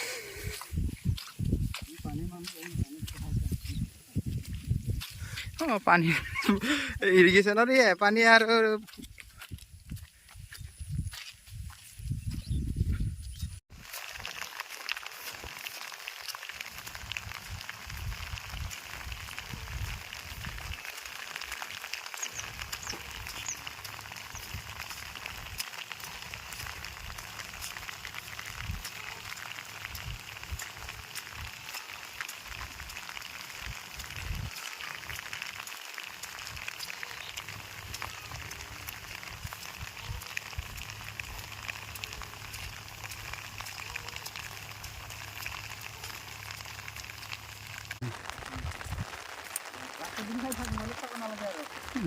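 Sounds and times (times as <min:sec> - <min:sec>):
light rain patter: 0:00.0 - 0:09.5, 0:13.7 - 0:52.0
wind buffeting microphone: 0:00.3 - 0:05.6, 0:09.0 - 0:13.6, 0:33.6 - 0:34.5, 0:48.0 - 0:49.4.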